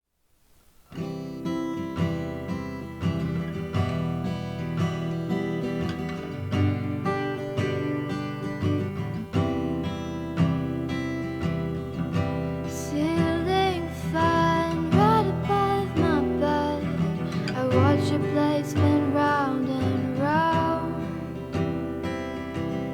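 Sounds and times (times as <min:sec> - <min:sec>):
acoustic guitar strumming: 0:00.9 - 0:22.9
person singing: 0:12.7 - 0:21.5.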